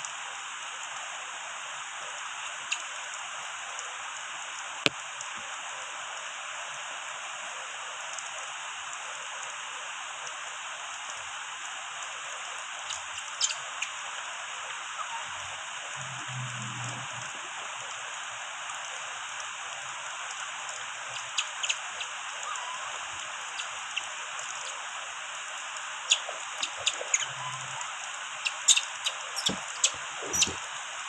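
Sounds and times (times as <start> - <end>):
rain hissing: 10.5 - 31.0.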